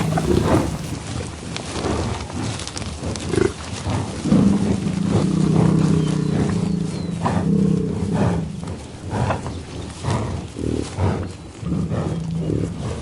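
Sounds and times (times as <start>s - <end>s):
farm animal calling: 0.0s - 1.0s.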